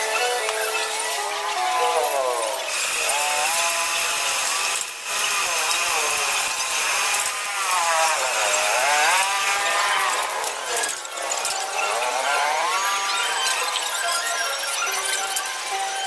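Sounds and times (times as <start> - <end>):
gliding melodic background music: 0.0 - 3.0, 10.0 - 16.0.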